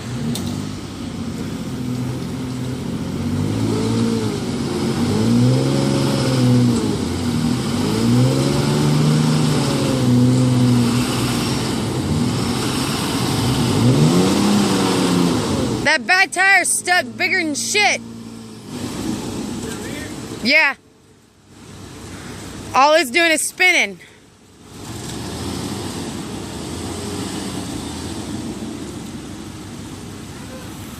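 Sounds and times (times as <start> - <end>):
tire spinning in place: 0.0 - 20.5
truck engine revving: 0.0 - 23.8, 24.6 - 30.9.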